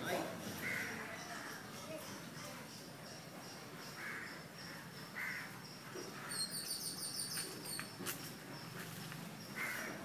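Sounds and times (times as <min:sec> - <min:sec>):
birds calling: 0:00.0 - 0:10.0
high bird chirps: 0:05.7 - 0:08.7.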